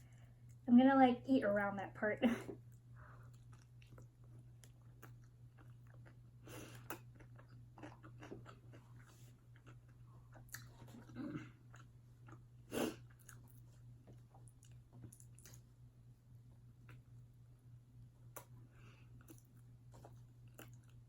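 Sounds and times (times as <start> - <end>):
steady low hum: 0.0 - 21.0
chewing and biting food: 2.7 - 15.7, 18.2 - 21.0.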